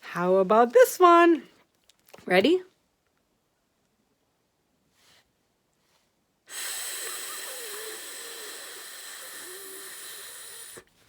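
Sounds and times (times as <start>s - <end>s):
person hissing like a snake: 6.5s - 10.9s.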